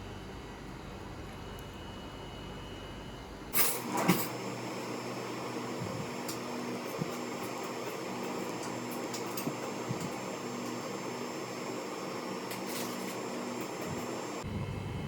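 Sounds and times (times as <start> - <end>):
machine hum with hiss: 0.0 - 15.0.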